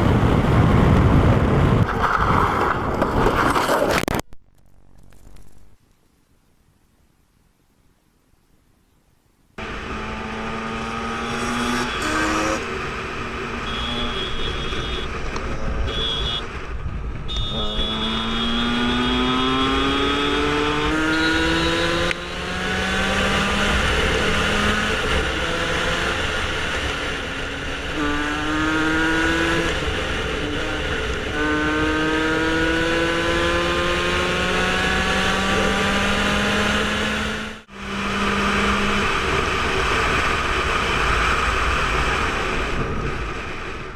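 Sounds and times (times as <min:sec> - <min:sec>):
rushing wind noise: 0:00.0 - 0:04.1, 0:14.2 - 0:37.3, 0:37.9 - 0:43.9
motorcycle engine accelerating: 0:09.6 - 0:43.9.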